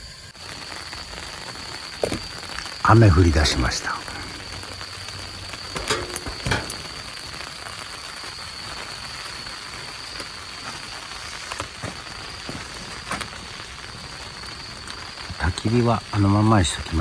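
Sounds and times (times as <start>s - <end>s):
rain hiss: 0.0s - 17.0s
raindrops tapping: 1.3s - 8.0s.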